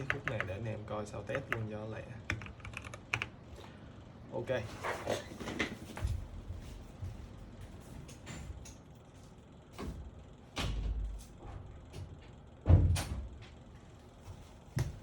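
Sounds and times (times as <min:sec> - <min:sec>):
door shutting with heavy thud: 0:12.6 - 0:13.3.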